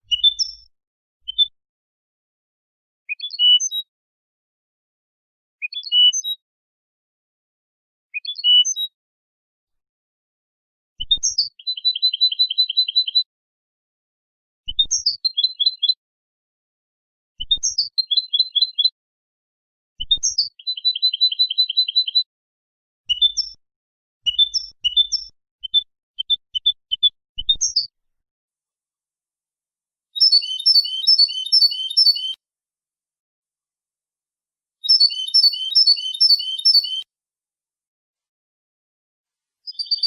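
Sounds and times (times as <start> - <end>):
goldfinch singing: 11.5 - 13.2, 20.6 - 22.2, 23.1 - 23.6, 24.3 - 27.9, 30.2 - 32.4, 34.8 - 37.0, 39.7 - 40.0.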